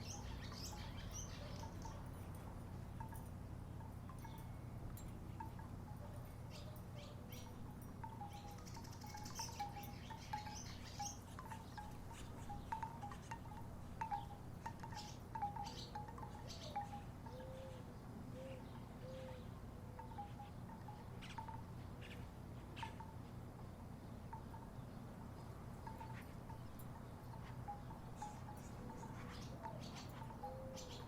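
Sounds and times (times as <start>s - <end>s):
low background hum: 0.0s - 31.0s
wooden wind chimes knocking: 0.5s - 17.6s, 20.0s - 22.2s.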